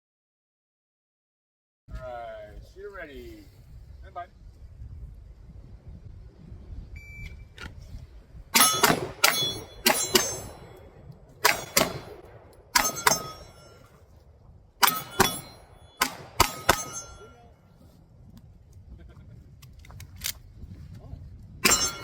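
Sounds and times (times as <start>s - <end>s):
pistol shots: 8.6s - 13.8s, 14.8s - 17.3s
steel targets ringing: 8.6s - 14.0s, 14.8s - 17.6s, 21.6s - 22.0s.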